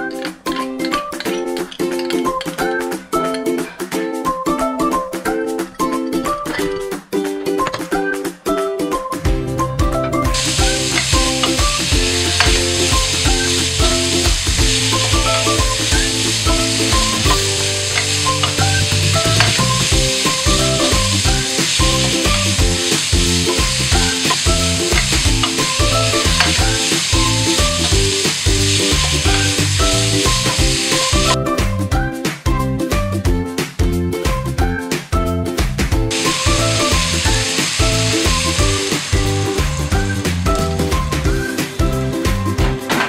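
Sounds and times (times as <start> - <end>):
background music melody: 0.0 - 43.0
pork sizzling in a pan: 10.2 - 31.4, 36.1 - 42.4.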